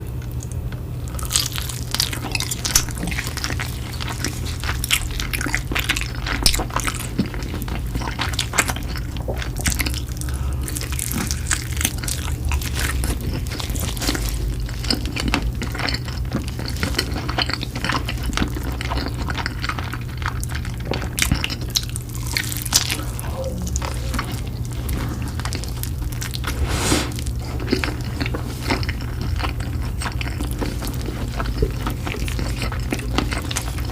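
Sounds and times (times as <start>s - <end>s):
steady low hum: 0.0s - 33.9s
food being chewed and crunched: 0.1s - 33.9s.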